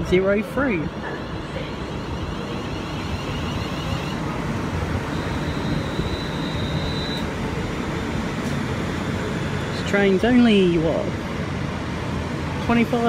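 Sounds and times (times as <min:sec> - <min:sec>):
electric train rumbling: 0:00.0 - 0:13.0
high steady whine: 0:01.5 - 0:10.8.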